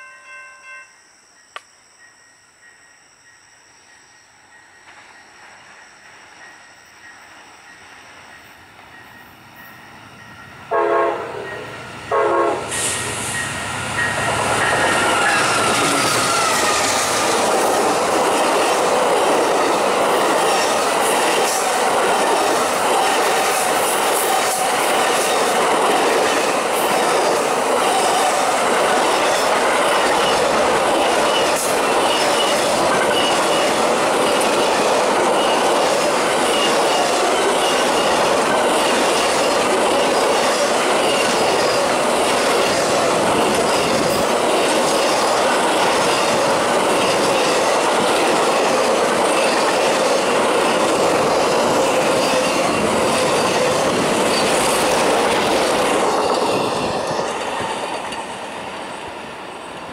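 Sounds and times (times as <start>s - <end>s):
train passing rumble: 1.2s - 59.9s
train horn blasts: 10.7s - 13.0s.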